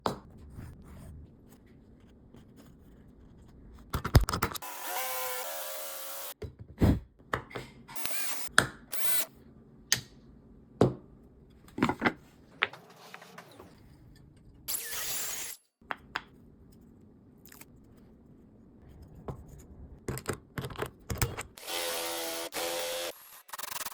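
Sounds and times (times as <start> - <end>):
small power tool motor whining: 4.6 - 6.4, 8.0 - 9.3, 21.6 - 23.9.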